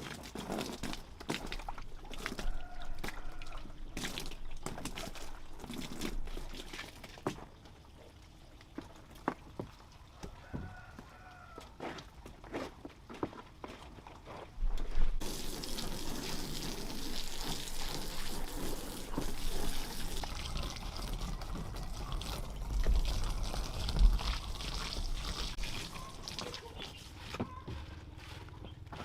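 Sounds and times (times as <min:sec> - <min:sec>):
water pouring: 0:00.0 - 0:10.1, 0:14.9 - 0:27.1.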